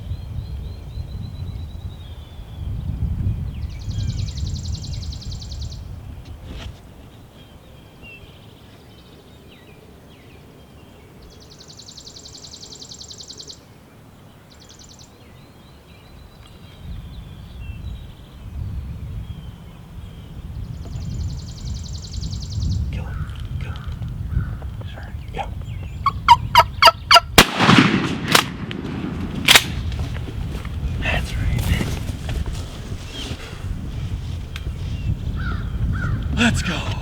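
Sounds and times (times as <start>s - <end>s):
wind buffeting microphone: 0.0s - 7.4s, 16.1s - 37.0s
small birds singing: 0.0s - 27.4s, 29.7s - 37.0s.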